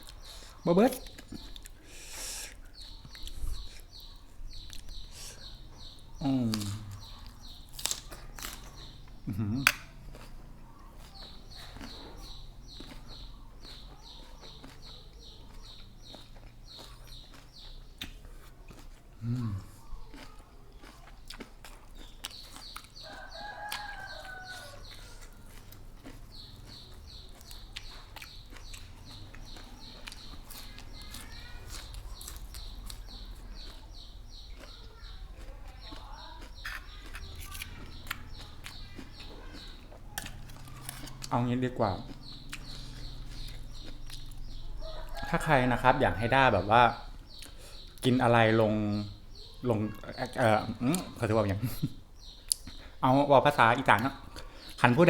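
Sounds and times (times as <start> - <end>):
eating crunches: 0.0 - 53.1
bird chirping: 0.0 - 55.0.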